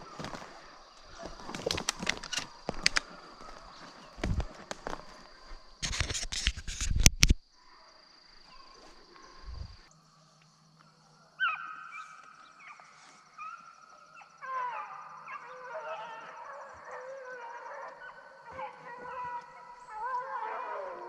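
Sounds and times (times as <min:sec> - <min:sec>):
hounds baying: 0:10.8 - 0:21.0.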